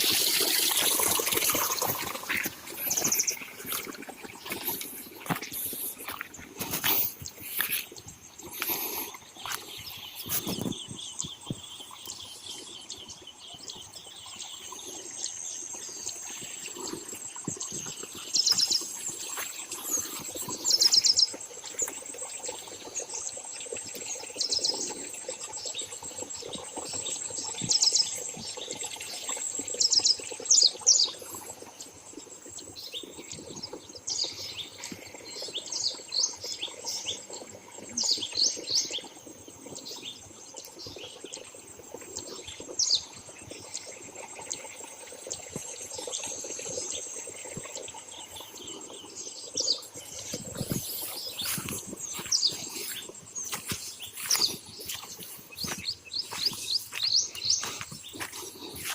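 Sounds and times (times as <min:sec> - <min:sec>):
birds trilling: 0:49.6 - 0:58.9.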